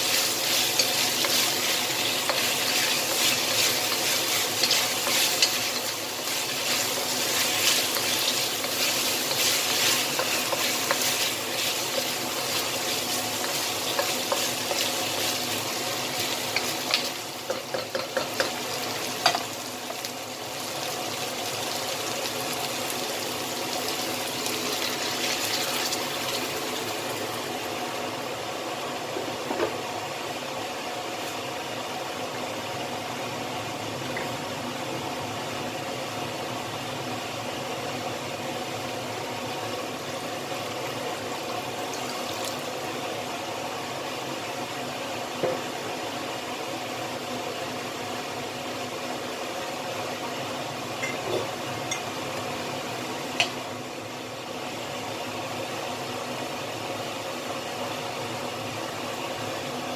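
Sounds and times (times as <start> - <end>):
wooden spatula scraping a wok: 0.0 - 18.6
chicken sizzling in hot oil: 0.0 - 28.8, 35.1 - 59.9.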